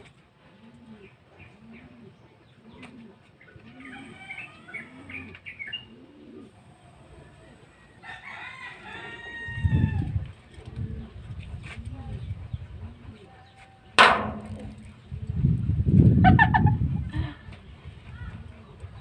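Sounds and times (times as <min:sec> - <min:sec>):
dove cooing: 0:00.4 - 0:13.3
small birds chirping: 0:00.8 - 0:08.4
rooster crowing: 0:03.8 - 0:05.1, 0:07.6 - 0:10.1.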